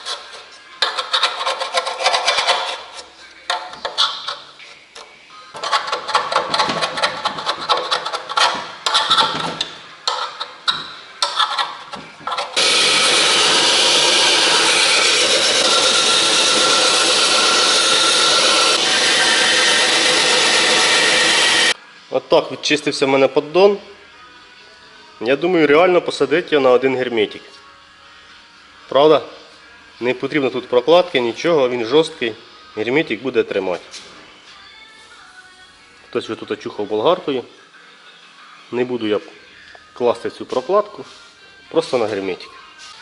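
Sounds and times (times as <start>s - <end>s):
scraping sealant off metal: 0.0s - 5.0s, 5.6s - 12.6s
loud steady noise: 12.6s - 21.8s.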